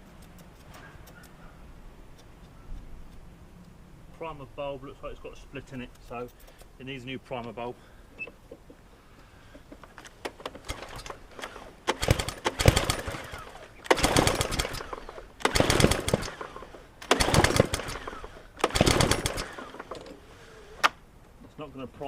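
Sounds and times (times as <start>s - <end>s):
lawn mower pull-start: 10.1s - 21.0s
mower engine firing briefly: 10.6s - 20.0s.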